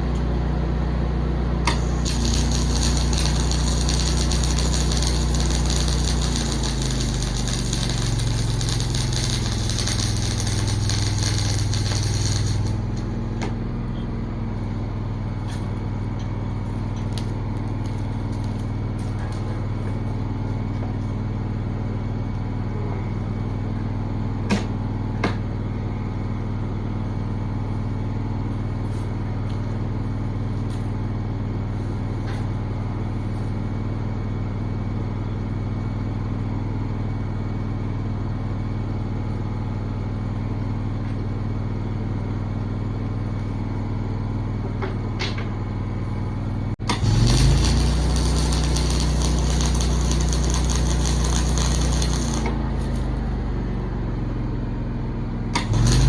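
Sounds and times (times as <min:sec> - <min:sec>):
engine running steadily: 0:00.0 - 0:56.0
loud hiss: 0:01.7 - 0:12.9, 0:46.9 - 0:52.5.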